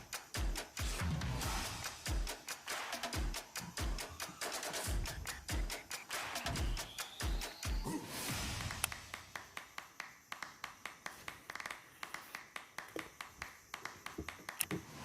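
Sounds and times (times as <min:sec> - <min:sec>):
sharp clicks and taps: 0:08.8 - 0:14.8.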